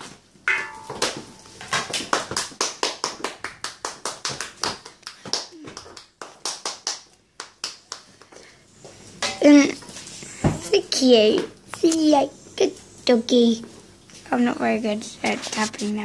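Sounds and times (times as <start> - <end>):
hands clapping: 0.9 - 8.4.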